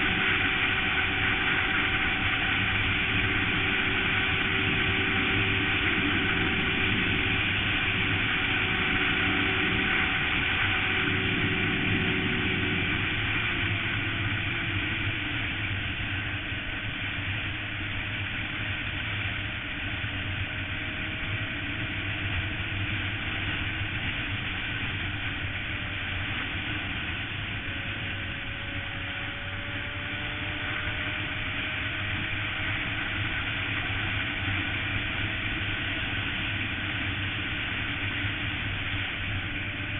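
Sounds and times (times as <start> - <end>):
wind rush: 0.0 - 16.4
motorcycle engine running: 0.0 - 39.9.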